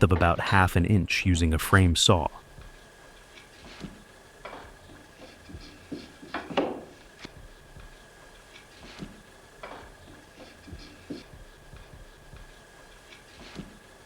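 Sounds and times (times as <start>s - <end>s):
hand saw rasping through wood: 3.5s - 7.7s, 8.4s - 12.3s, 13.0s - 14.0s.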